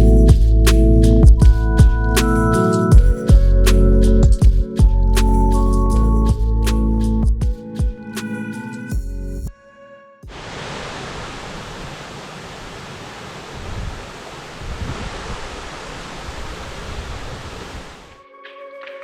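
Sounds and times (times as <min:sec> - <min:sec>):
waterfall roaring: 0:10.3 - 0:18.2.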